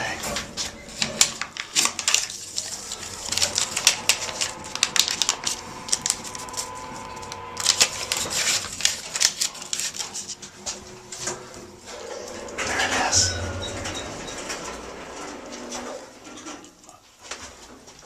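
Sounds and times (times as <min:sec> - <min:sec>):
faint steady hum: 0:00.0 - 0:16.3.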